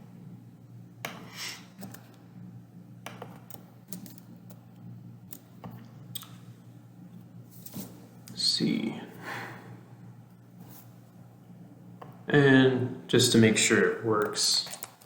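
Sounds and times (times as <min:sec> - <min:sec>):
low electrical hum: 0:00.0 - 0:15.0
computer keyboard keystrokes: 0:03.0 - 0:04.6.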